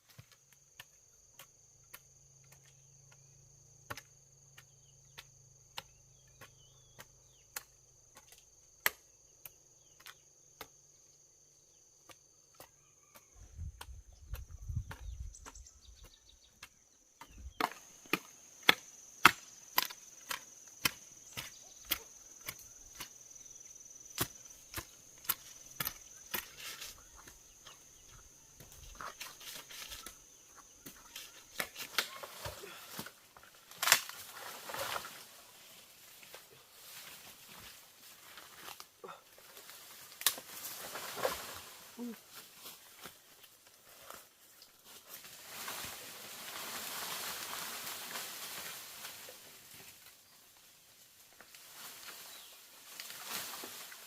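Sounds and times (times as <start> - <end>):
blade chopping bamboo: 16.6 - 23.2
high insect drone: 17.2 - 54.0.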